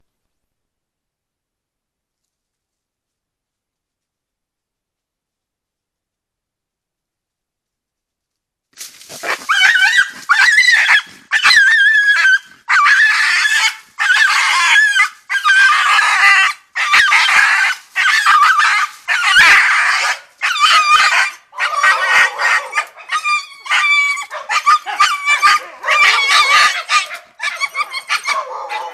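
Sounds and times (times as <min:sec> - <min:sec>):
animal squealing and yelping: 0:09.1 - 0:28.9.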